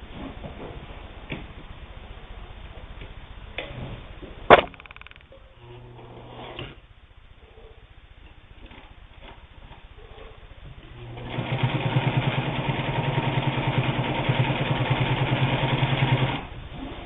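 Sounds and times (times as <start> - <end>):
sewing machine stitching: 11.0 - 17.0.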